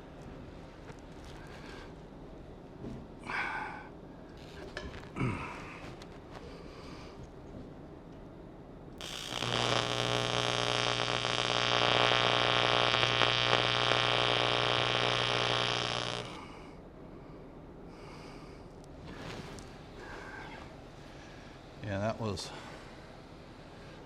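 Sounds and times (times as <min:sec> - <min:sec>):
welding arc buzzing: 0:09.0 - 0:16.6.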